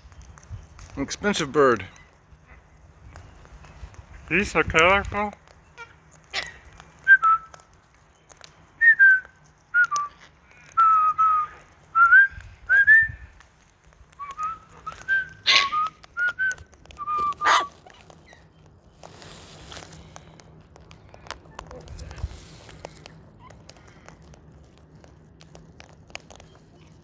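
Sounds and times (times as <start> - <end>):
short whistled notes: 8.8 - 10.2, 10.8 - 13.2, 14.2 - 17.7.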